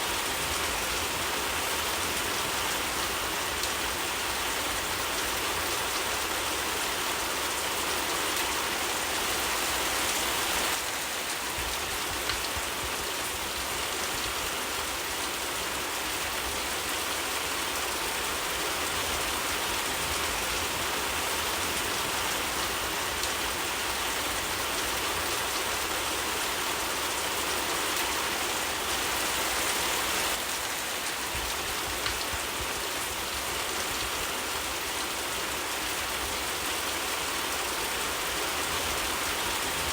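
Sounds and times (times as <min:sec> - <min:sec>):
steady rain falling: 0:00.0 - 0:39.9
wood fire crackling: 0:31.1 - 0:34.3.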